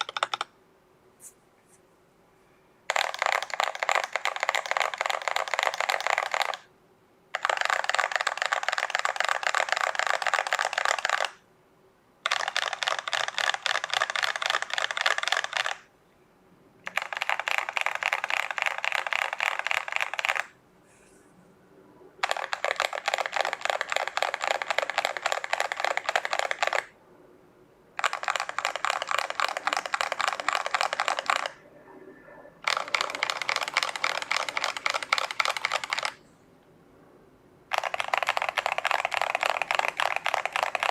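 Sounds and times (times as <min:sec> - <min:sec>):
mechanical keyboard keystrokes: 0:00.0 - 0:00.5, 0:02.9 - 0:06.7, 0:07.4 - 0:11.4, 0:12.2 - 0:15.8, 0:16.8 - 0:20.5, 0:22.2 - 0:26.9, 0:28.0 - 0:31.6, 0:32.6 - 0:36.2, 0:37.7 - 0:40.9.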